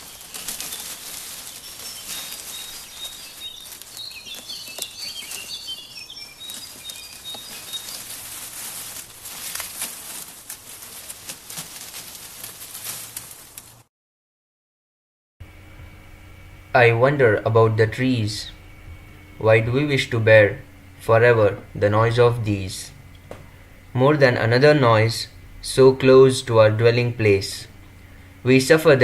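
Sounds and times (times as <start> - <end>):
birds chirping: 0.0 - 13.3, 15.8 - 29.0
leaves rustling in wind: 0.0 - 13.9.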